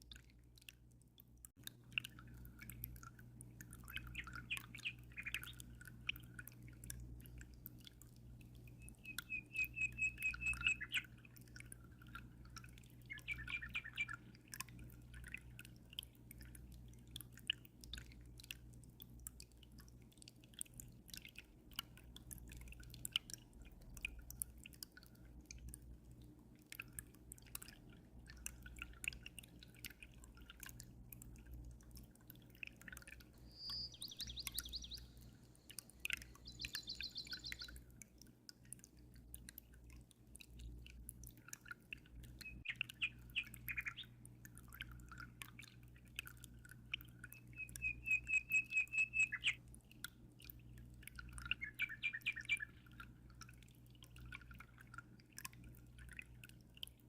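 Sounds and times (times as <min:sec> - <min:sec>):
aquarium water trickling: 0:00.0 - 0:57.0
birds chirping and trilling: 0:03.9 - 0:05.7, 0:08.8 - 0:11.1, 0:13.1 - 0:14.2, 0:33.4 - 0:35.4, 0:36.0 - 0:37.8, 0:42.4 - 0:44.2, 0:47.5 - 0:49.6, 0:51.5 - 0:52.8.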